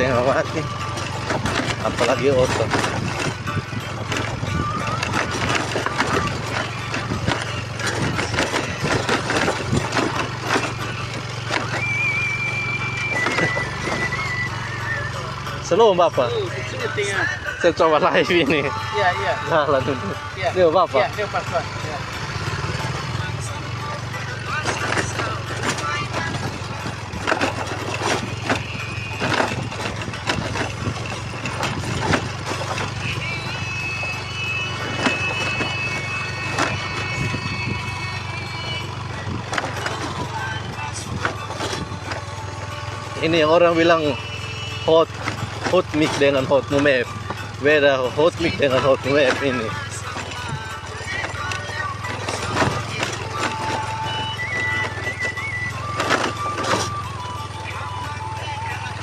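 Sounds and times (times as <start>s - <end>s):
knocks and rattles: 0.0s - 18.8s, 20.7s - 59.0s
motorcycle engine running: 0.0s - 59.0s
high wavering whistle-like tone: 11.8s - 15.3s.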